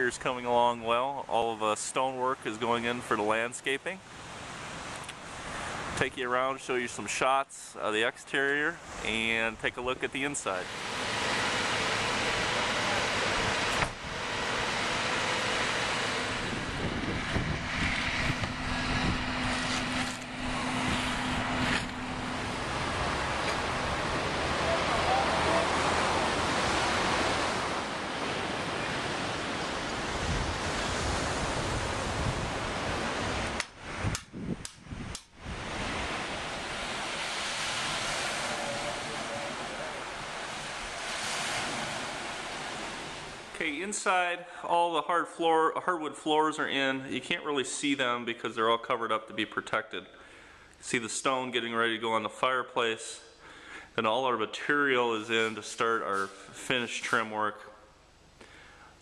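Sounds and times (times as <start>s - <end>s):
steady low hum: 8.8s - 44.6s
wind on microphone: 10.7s - 27.8s, 29.1s - 43.5s.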